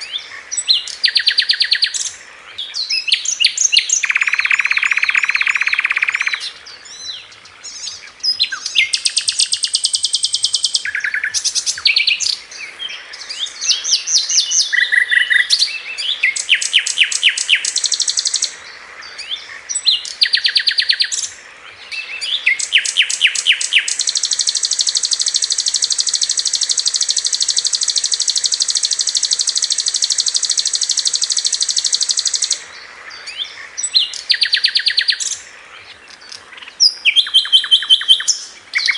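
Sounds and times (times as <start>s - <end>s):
flycatcher song with high chirps: 0.0s - 38.9s
long high bird trill: 2.9s - 6.5s, 13.3s - 18.5s, 21.9s - 35.4s.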